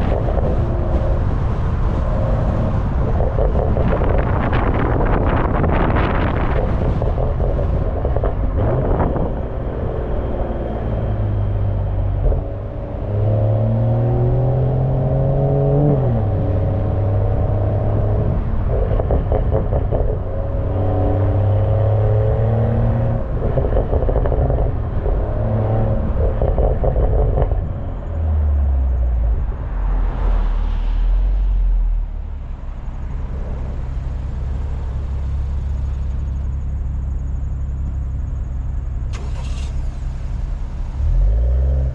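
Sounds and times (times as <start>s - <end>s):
wind buffeting microphone: 0.0s - 30.1s
car exhaust accelerating: 0.0s - 41.9s.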